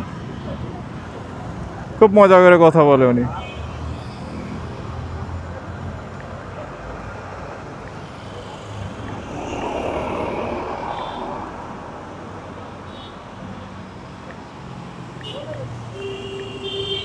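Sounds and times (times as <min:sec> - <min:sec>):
city street traffic: 0:00.0 - 0:17.0
vehicle passing: 0:03.8 - 0:15.0.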